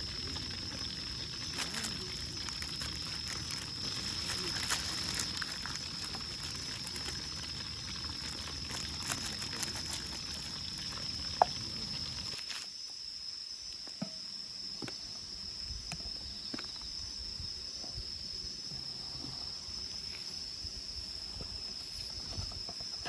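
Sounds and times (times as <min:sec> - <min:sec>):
campfire pops and crackles: 0:00.0 - 0:12.8
night insects chirring: 0:00.0 - 0:23.0.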